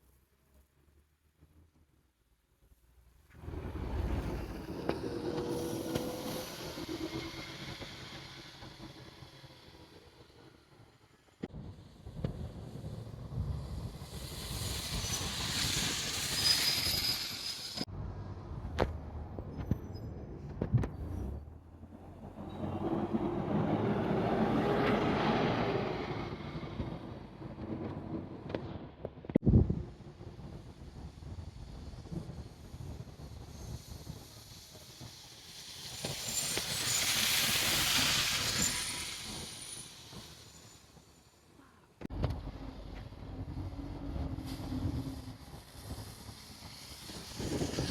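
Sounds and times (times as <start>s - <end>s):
low rumble: 3.3s - 10.9s
train wheels and air hissing: 3.4s - 17.9s, 30.1s - 41.6s, 42.7s - 47.9s
faint high squeal: 14.3s - 17.9s, 19.5s - 21.5s, 33.4s - 42.0s.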